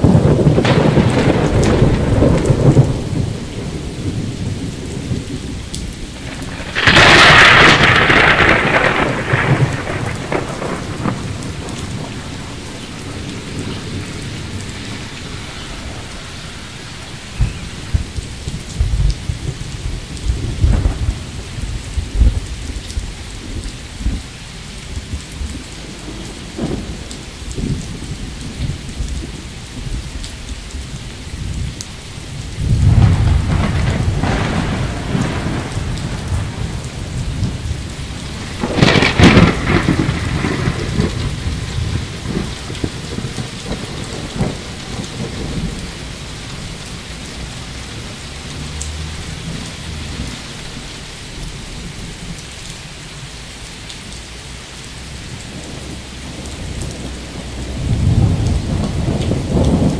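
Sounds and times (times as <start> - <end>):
sharp thunderclap: 0.0 - 24.3, 32.5 - 47.1, 55.5 - 59.9
rolling thunder: 0.0 - 54.2, 54.8 - 59.9
steady rain: 0.0 - 59.9.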